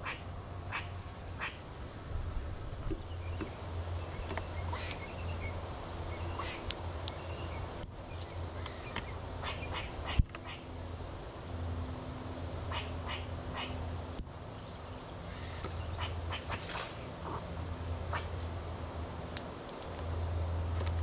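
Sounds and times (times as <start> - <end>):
birds chirping: 0.0 - 2.0, 2.8 - 10.8, 12.6 - 17.5.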